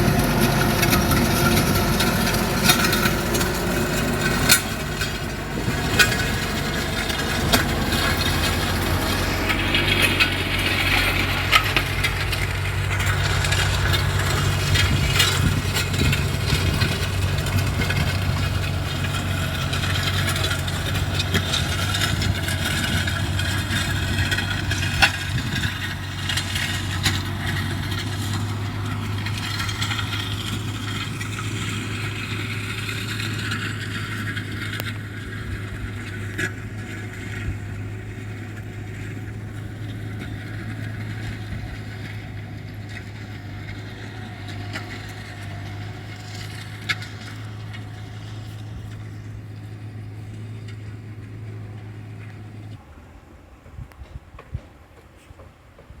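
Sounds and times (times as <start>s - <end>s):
rattling and clatter: 0.0s - 52.8s
tractor diesel engine running: 0.0s - 56.0s.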